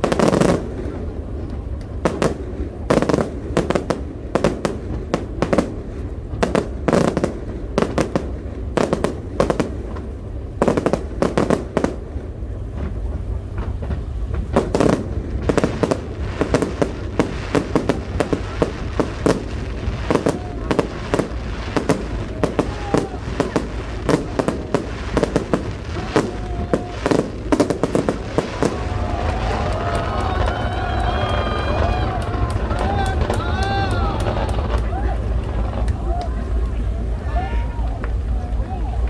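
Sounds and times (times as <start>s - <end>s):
constant low rumble: 0.0s - 39.0s
fireworks bangs and crackles: 0.0s - 39.0s.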